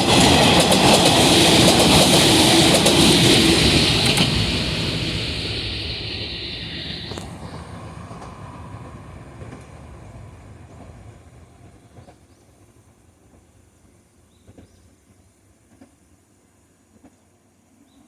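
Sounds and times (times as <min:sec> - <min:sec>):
electric train running: 0:00.0 - 0:13.4.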